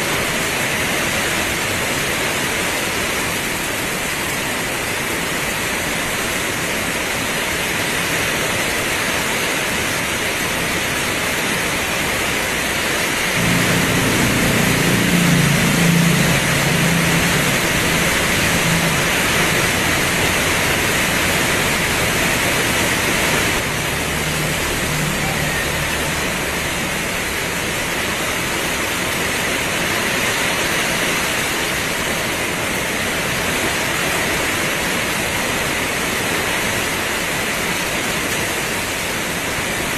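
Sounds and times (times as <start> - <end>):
heavy rain pouring: 0.0 - 39.9
low rumble: 13.4 - 28.8.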